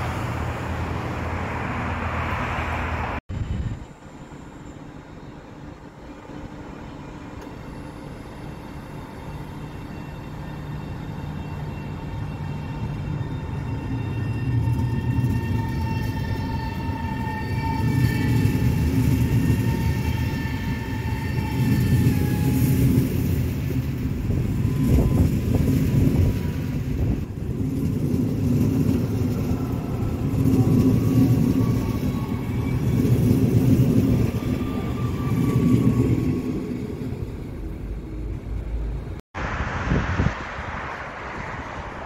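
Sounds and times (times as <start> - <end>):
train wheels rumbling on rail: 5.6 - 39.2
rising high whine: 39.4 - 42.0.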